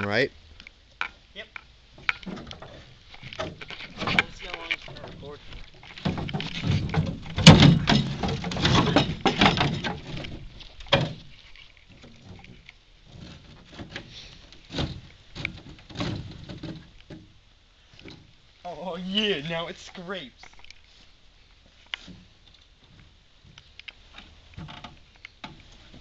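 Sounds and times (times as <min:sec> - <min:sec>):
metal knocks: 0:02.0 - 0:11.3
metal parts scraping and clattering: 0:02.1 - 0:15.0.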